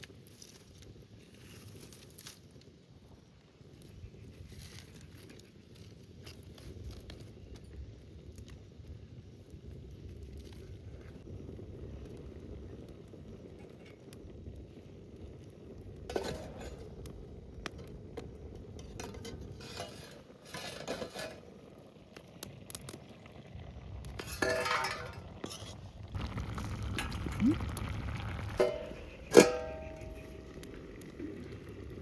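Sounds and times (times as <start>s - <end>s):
metal cookware clinking: 24.2s - 25.6s, 28.6s - 30.4s.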